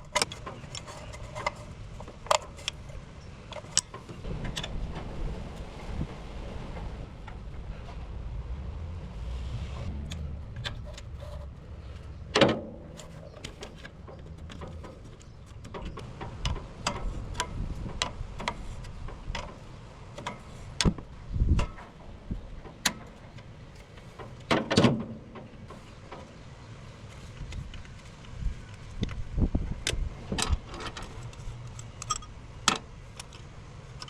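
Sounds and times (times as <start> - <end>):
low rumble: 4.2 - 13.4.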